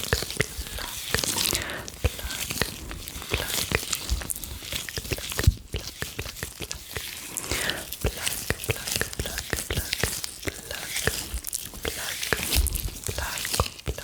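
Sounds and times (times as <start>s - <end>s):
gloved hands rustling: 0.0s - 14.0s
wet mouth clicks and pops: 0.0s - 14.0s.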